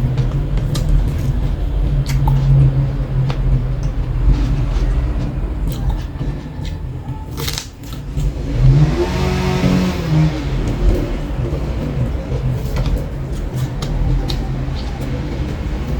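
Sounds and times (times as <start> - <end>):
vehicle engine rumble: 0.0 - 15.9
crunching crisp fried food: 6.7 - 8.9.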